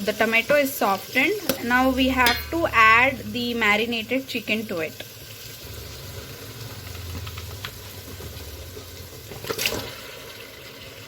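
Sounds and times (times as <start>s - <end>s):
chicken frying and sizzling: 0.0s - 11.0s
utensil scraping metal pan: 1.4s - 3.5s.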